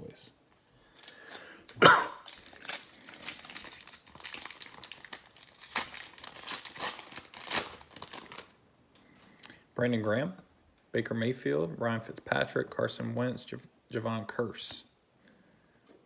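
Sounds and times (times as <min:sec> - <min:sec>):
wrapper tearing and crinkling: 0:00.9 - 0:08.6.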